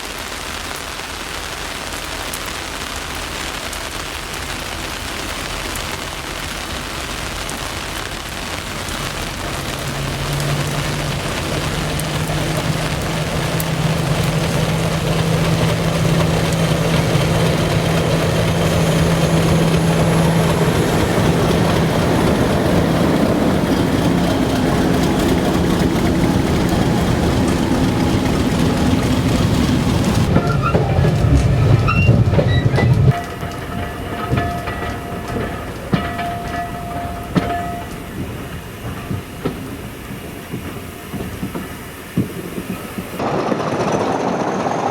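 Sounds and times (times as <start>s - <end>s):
train running: 0.0s - 44.9s.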